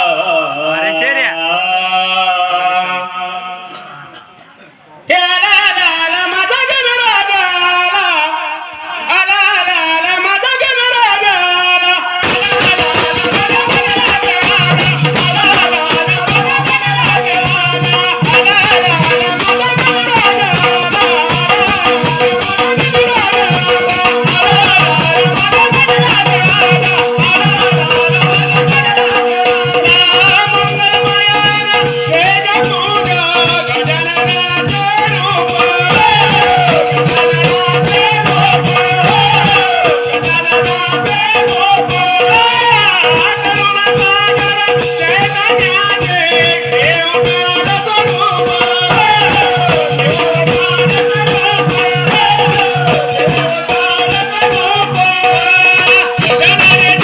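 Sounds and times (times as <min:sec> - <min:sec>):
quick percussive beat: 0:12.2 - 0:57.0.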